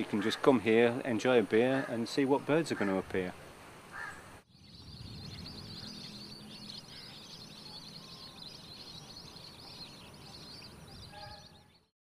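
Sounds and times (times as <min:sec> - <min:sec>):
small birds chirping: 0:03.9 - 0:11.9.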